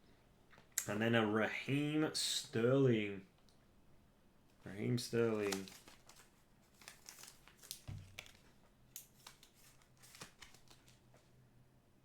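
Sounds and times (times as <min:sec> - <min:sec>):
cards rustling and clicking: 0:04.8 - 0:11.3.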